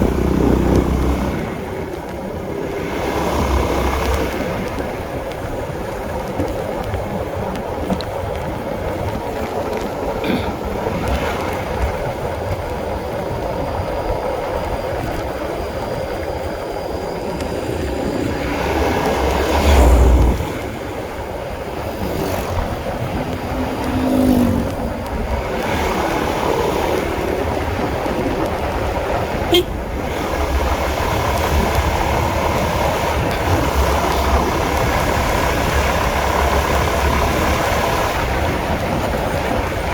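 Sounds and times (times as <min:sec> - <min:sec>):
motorcycle engine running: 0:00.0 - 0:07.5, 0:14.5 - 0:39.9
wind rush on microphone: 0:00.0 - 0:39.9.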